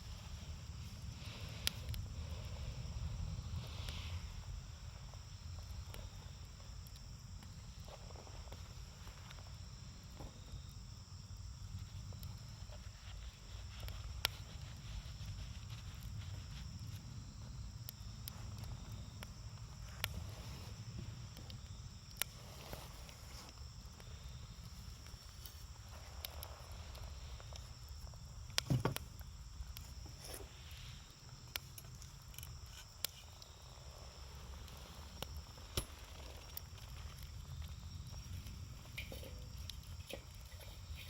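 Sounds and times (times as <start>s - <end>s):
campfire crackling and popping: 0.0s - 41.0s.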